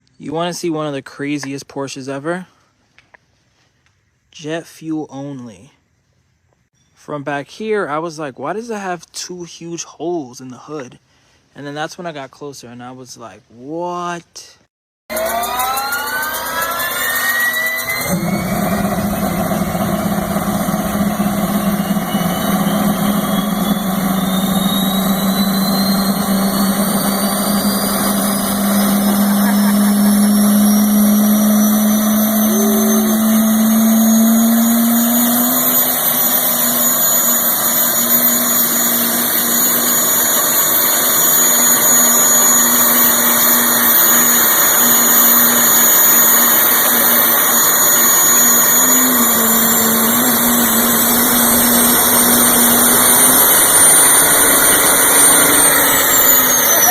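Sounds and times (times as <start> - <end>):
jet turbine whine: 15.1 - 56.9
steady lower drone: 15.1 - 56.9.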